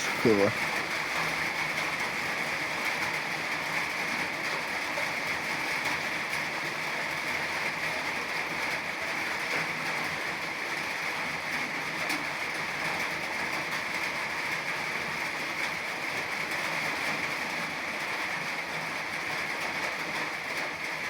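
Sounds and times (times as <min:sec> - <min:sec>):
steady rain hiss: 0:00.0 - 0:01.2.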